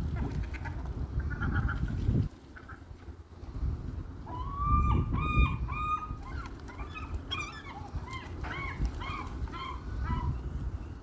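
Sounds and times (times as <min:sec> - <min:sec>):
gulls calling: 0:04.2 - 0:11.0.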